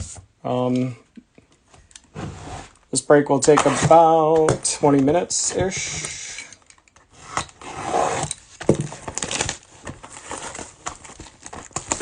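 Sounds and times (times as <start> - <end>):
rustling and tapping of objects: 8.2 - 12.0.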